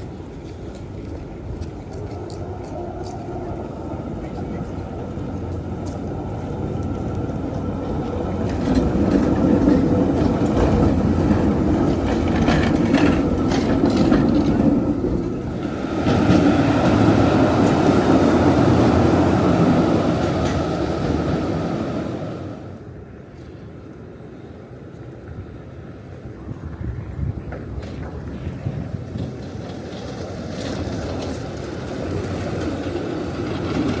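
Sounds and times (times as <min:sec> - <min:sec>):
tram wheels rumbling on rails: 0:00.0 - 0:34.0
clicks over rail joints: 0:05.5 - 0:17.9.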